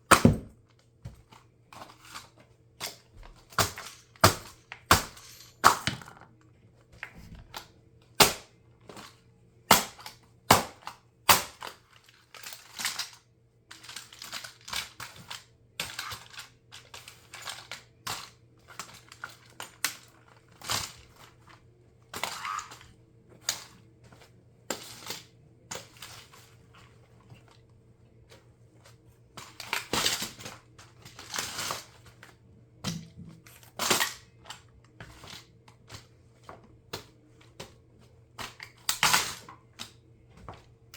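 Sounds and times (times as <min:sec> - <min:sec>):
plastic toy car cracking and crunching: 0:02.9 - 0:06.3, 0:08.2 - 0:08.5, 0:09.7 - 0:13.2, 0:13.8 - 0:21.3, 0:22.2 - 0:22.9, 0:29.5 - 0:32.0, 0:33.7 - 0:34.6, 0:38.5 - 0:39.5.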